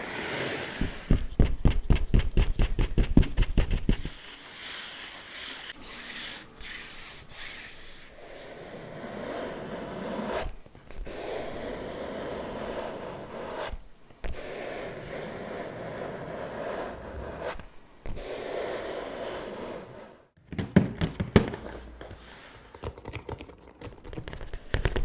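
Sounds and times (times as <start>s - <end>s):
scratching and rubbing on surface: 2.1s - 20.3s
hands tapping: 20.5s - 25.0s.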